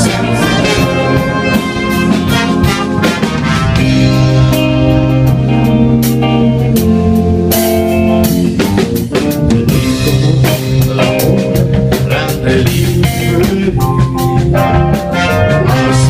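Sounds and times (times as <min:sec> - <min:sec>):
drum kit strikes: 0:00.0 - 0:16.0
live band playing: 0:00.0 - 0:16.0.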